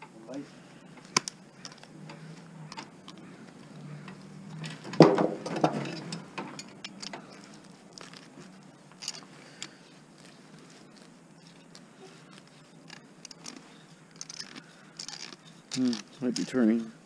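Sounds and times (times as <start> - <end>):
hand tools clinking on metal: 4.0 - 8.3, 14.2 - 17.0.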